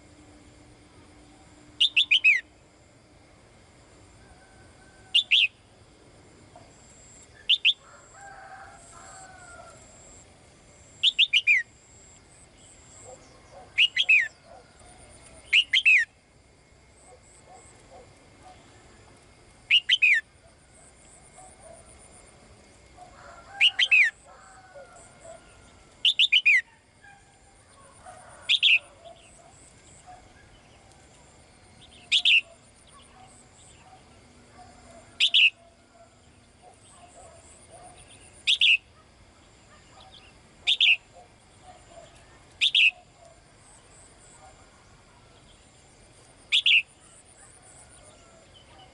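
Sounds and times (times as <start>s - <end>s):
faint lower bird sounds: 1.0s - 2.7s, 10.9s - 16.2s, 23.0s - 48.9s
songbird calling: 1.8s - 2.5s, 5.1s - 5.6s, 7.3s - 7.8s, 11.0s - 11.7s, 12.6s - 16.2s, 19.7s - 20.3s, 23.0s - 44.6s, 46.4s - 48.9s.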